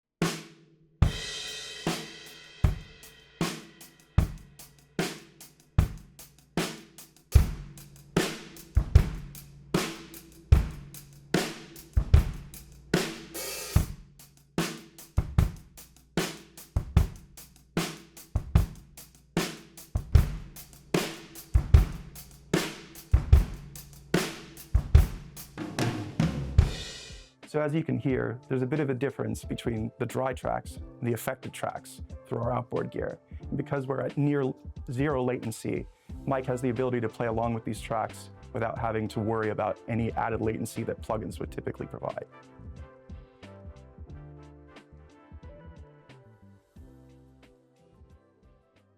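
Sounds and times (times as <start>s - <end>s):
drum kit groove: 0.2s - 27.7s, 30.4s - 39.4s.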